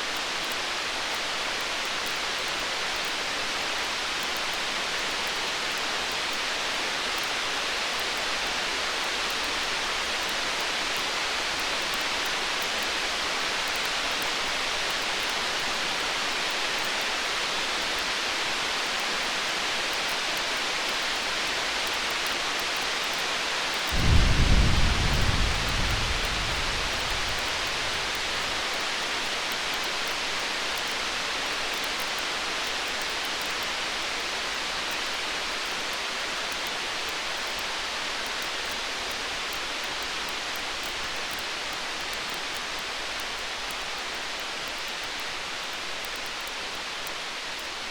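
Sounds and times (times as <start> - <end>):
steady hiss: 22.8 - 36.6
campfire crackles: 23.8 - 31.0
distant thunder rumble: 23.9 - 29.0.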